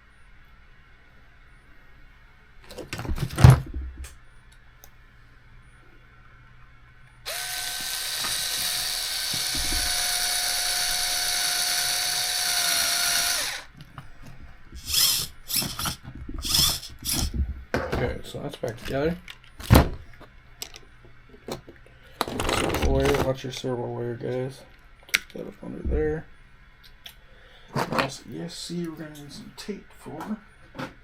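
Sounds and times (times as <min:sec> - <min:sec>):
electric screwdriver running: 0:07.3 - 0:13.7, 0:14.8 - 0:17.3.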